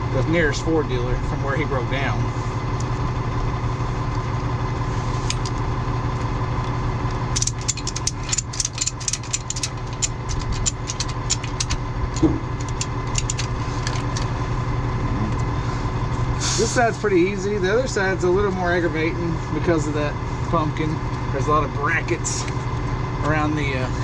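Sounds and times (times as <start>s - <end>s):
truck engine idling: 0.0s - 24.0s
metal clicking and rattling: 7.3s - 14.4s.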